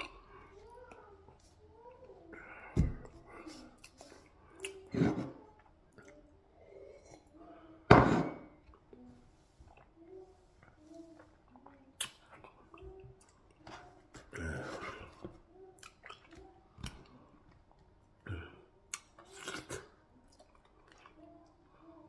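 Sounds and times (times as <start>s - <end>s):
man chewing with wet smacking: 15.8s - 17.8s, 18.9s - 21.2s.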